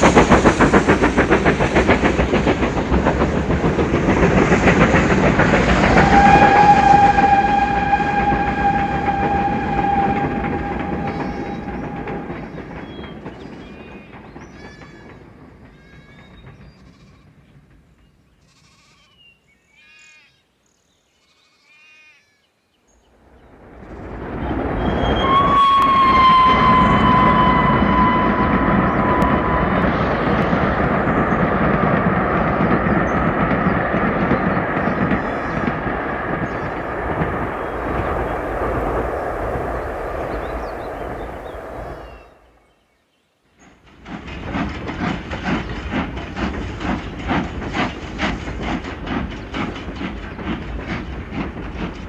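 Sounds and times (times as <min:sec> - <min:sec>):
train running noise: 0:00.0 - 0:18.9, 0:23.1 - 0:42.8, 0:43.6 - 0:52.0
train horn: 0:05.2 - 0:13.1, 0:23.7 - 0:31.4, 0:37.2 - 0:42.5
short high calls: 0:06.0 - 0:12.8, 0:24.8 - 0:30.2.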